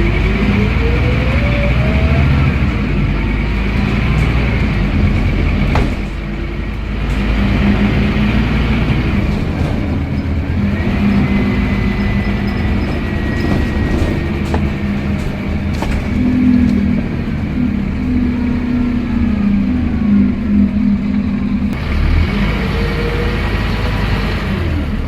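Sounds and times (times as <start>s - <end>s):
rattles and clicks: 0.0s - 17.8s
bus engine drone: 0.0s - 25.0s
gearbox whine: 0.0s - 25.0s.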